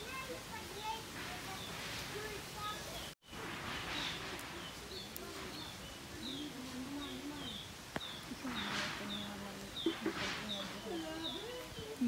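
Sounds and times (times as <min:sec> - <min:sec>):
faint distant voices: 0:00.0 - 0:12.0
short rustle: 0:00.8 - 0:06.9, 0:07.5 - 0:12.0
bird chirping: 0:02.6 - 0:12.0.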